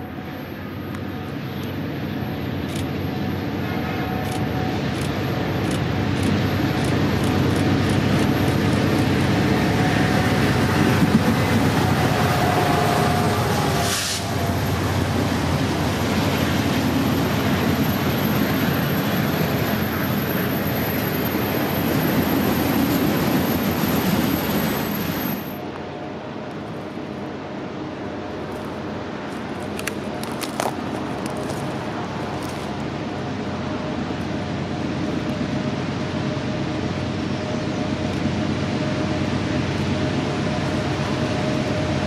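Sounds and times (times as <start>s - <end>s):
diesel locomotive rumble: 0.0s - 42.0s
train wheels clicking: 4.2s - 9.6s.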